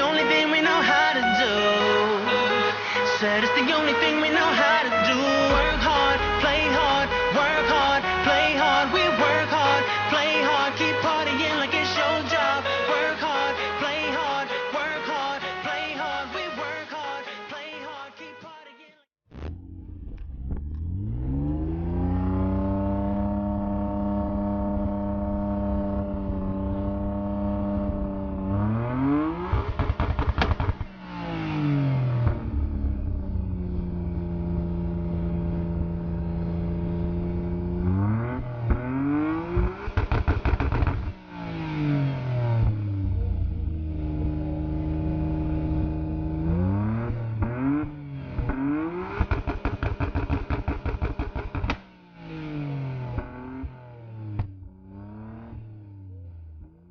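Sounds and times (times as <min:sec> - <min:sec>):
car engine revving with crackles: 0:19.2 - 0:56.9.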